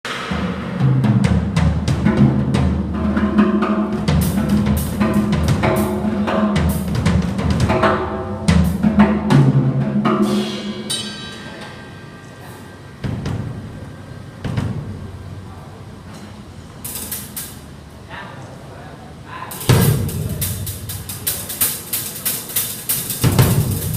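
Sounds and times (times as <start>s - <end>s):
drum kit playing: 0.0s - 15.5s, 16.8s - 17.7s, 19.5s - 23.9s
cymbals ringing: 2.1s - 15.5s, 19.5s - 23.9s.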